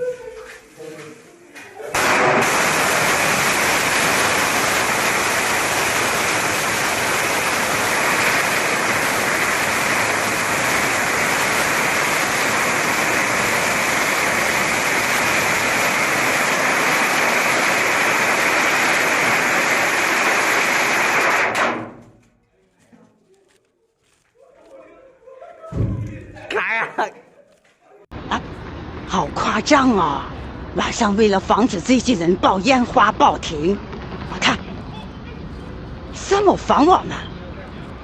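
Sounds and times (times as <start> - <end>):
loud rushing hiss: 2.0 - 21.7.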